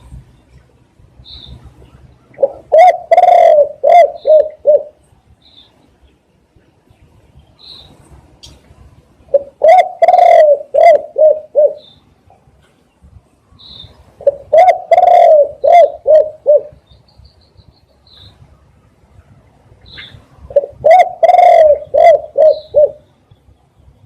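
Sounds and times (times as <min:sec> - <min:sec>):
faint high bird chirps: 0:01.2 - 0:02.6, 0:05.4 - 0:06.2, 0:07.0 - 0:08.1, 0:11.7 - 0:12.2, 0:12.9 - 0:14.0, 0:16.7 - 0:18.4, 0:19.8 - 0:20.3
dove cooing: 0:02.2 - 0:05.0, 0:09.3 - 0:12.0, 0:14.2 - 0:16.9, 0:20.0 - 0:23.1.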